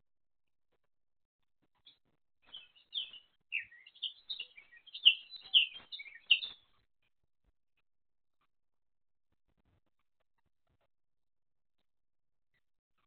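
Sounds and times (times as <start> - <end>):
small bird chirping: 1.8 - 6.8.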